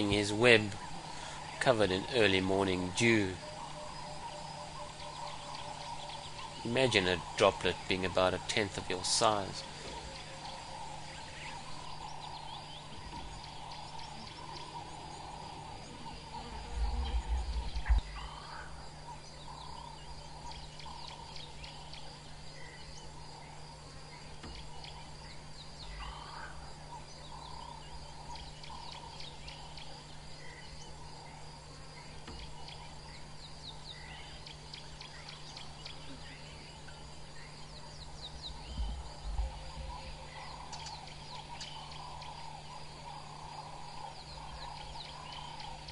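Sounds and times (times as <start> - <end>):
birds chirping: 0.0 - 45.9
insects chorus: 0.0 - 45.9
short low rumbles: 15.2 - 18.8.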